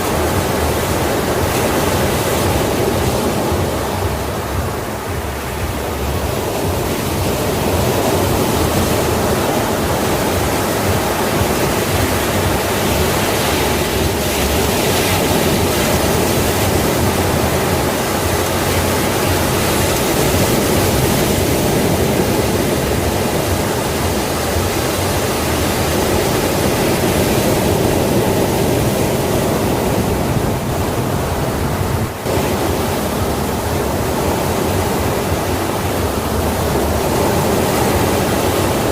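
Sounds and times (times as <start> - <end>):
sea waves washing on shore: 0.0 - 38.9.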